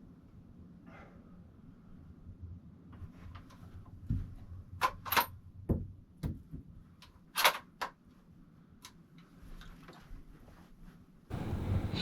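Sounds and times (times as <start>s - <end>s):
dull handling knocks: 5.6s - 6.8s
metallic clicks and rattles: 7.0s - 8.0s.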